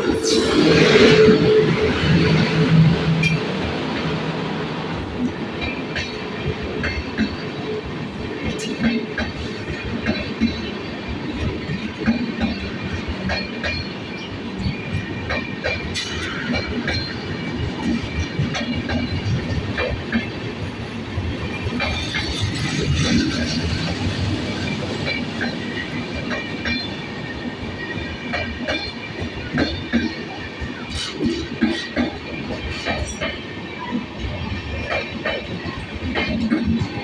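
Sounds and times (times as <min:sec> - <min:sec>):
train rumbling past: 0:00.0 - 0:37.0
wheels clicking over rail joints: 0:04.9 - 0:37.0.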